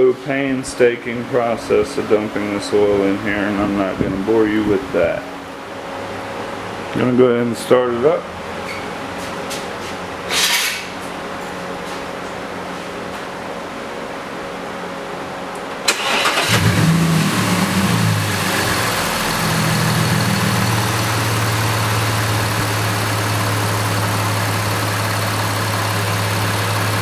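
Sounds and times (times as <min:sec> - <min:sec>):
car engine starting and idling: 0:15.8 - 0:27.0.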